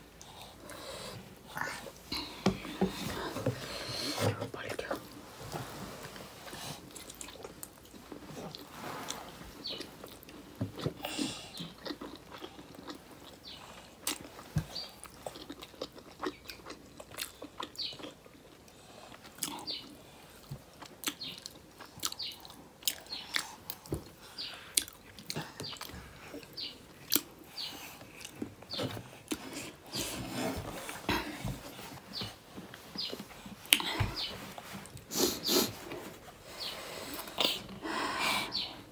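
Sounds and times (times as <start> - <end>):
wet chewing: 6.4 - 30.0
food crunching: 6.5 - 8.7, 9.6 - 23.9.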